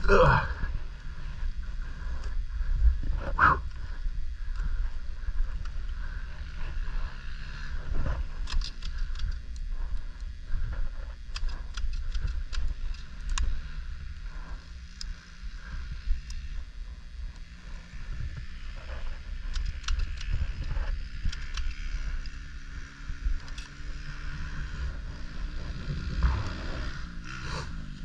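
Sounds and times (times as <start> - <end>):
dirt bike engine: 0.0 - 28.0
wind rumble on microphone: 0.0 - 28.0
sharp clicks and knocks: 19.5 - 20.4.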